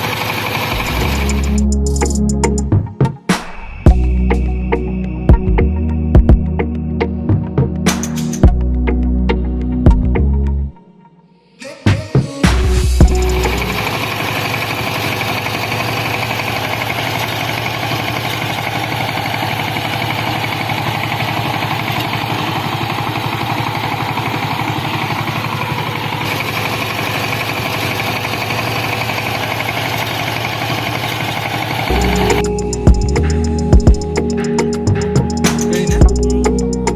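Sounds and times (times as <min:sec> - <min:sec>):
model thresher machine rattling: 0:00.0 - 0:01.6, 0:13.4 - 0:32.0.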